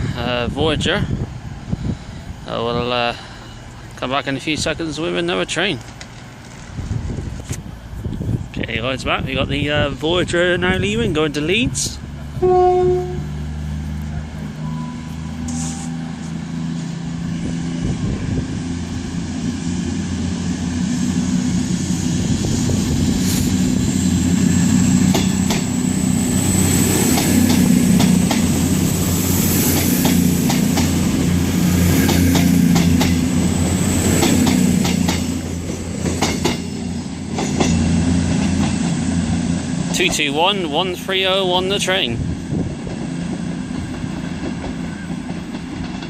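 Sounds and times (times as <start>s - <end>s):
diesel train engines droning: 0.0s - 46.0s
wheels clicking over rail joints: 42.8s - 46.0s.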